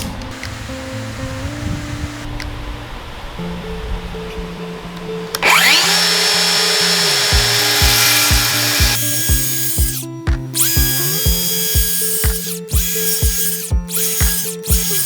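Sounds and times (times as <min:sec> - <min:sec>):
background music with low beat: 0:04.0 - 0:15.0
power tool motor whining: 0:05.2 - 0:15.0.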